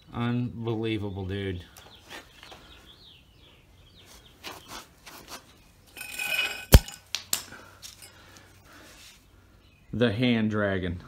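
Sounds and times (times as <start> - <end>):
ringing scrape: 5.9 - 7.0
hard objects clinking: 5.9 - 8.4.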